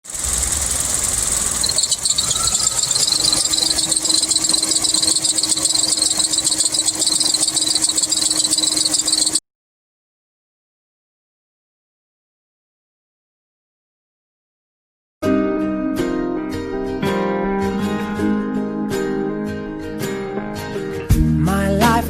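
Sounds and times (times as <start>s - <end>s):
car engine running: 0.0s - 9.4s
drive belt squealing: 0.0s - 9.4s
steady low hum: 0.1s - 9.4s.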